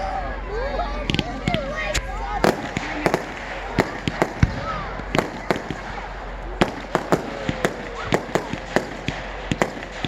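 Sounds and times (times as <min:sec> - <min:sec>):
fireworks cracking and banging: 0:01.1 - 0:10.0.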